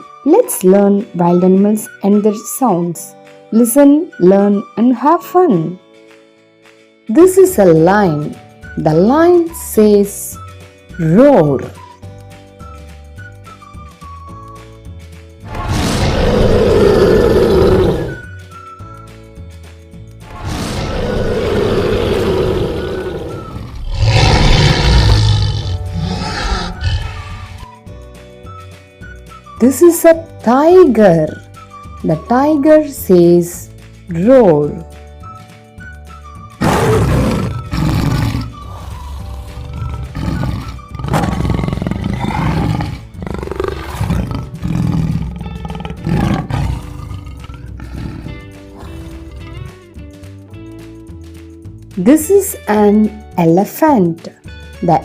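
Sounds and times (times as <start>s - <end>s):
background music: 0.0s - 55.0s
lion roaring: 15.5s - 18.2s, 20.3s - 27.8s, 36.6s - 49.6s.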